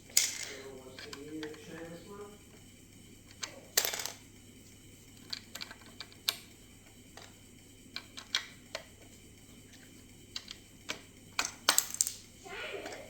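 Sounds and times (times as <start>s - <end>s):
plastic bricks clicking: 8.0s - 8.9s, 10.4s - 12.2s.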